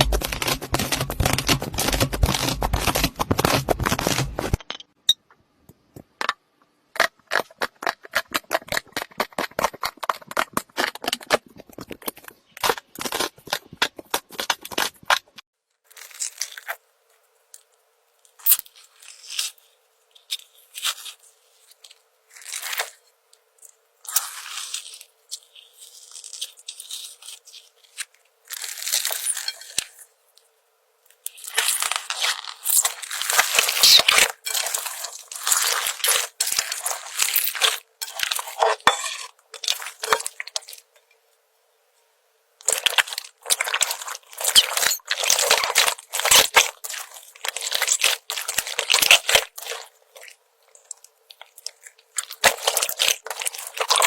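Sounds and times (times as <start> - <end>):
slime crackling and popping: 0.0 - 4.6, 31.3 - 39.0, 42.6 - 54.0.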